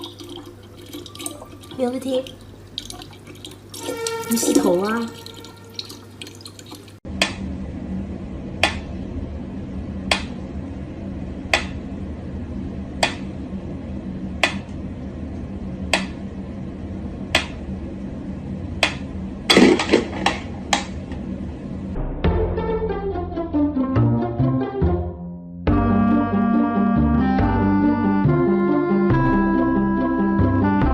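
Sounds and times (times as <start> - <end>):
steady low hum: 0.0 - 22.2.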